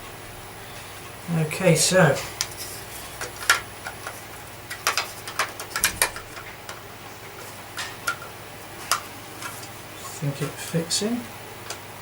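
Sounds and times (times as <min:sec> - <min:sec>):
small parts clicking and knocking: 0:02.4 - 0:06.8.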